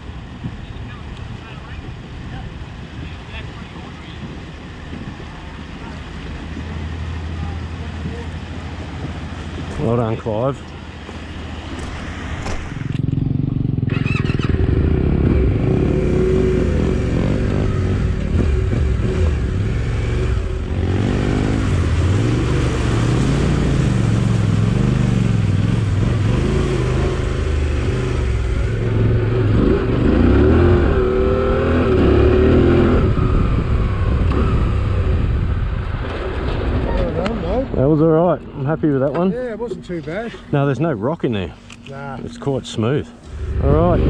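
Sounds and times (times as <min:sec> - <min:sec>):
motorcycle engine revving: 0:11.0 - 0:38.0, 0:43.0 - 0:44.0.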